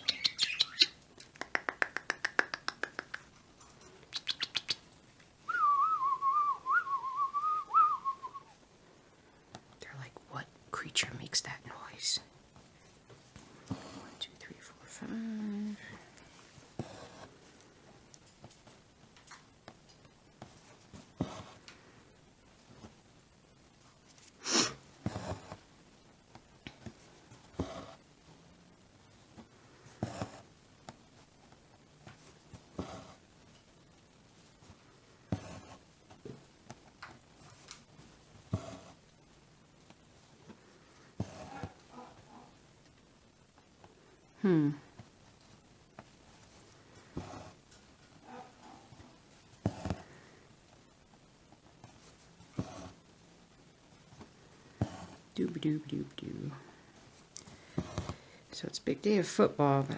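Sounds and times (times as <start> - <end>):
parakeets chirping: 0.0 - 1.0
wavering whistle: 5.5 - 8.5.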